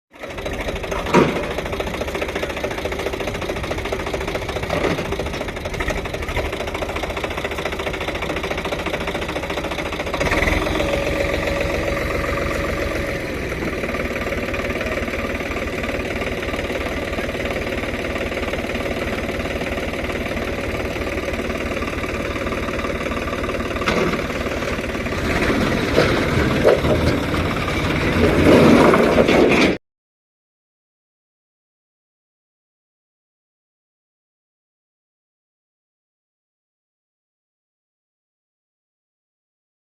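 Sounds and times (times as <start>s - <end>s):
tractor diesel engine chugging: 0.2s - 29.8s.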